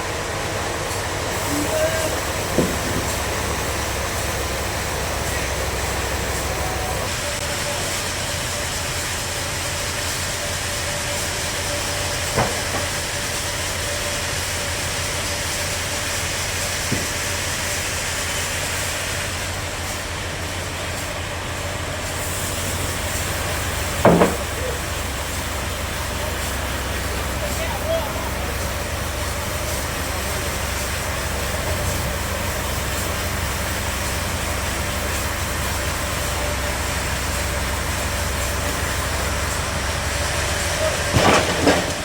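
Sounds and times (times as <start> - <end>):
bandsaw running: 1.3 - 19.8
sharp knocks: 2.5 - 3.2, 16.9 - 17.2, 24.0 - 24.6.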